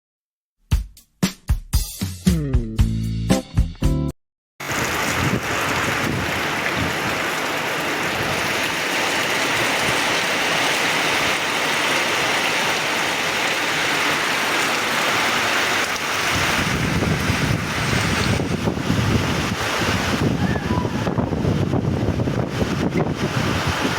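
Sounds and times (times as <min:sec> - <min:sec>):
heavy rain hissing: 0:04.6 - 0:23.9
wind buffeting on microphone: 0:04.7 - 0:07.3, 0:16.2 - 0:23.9.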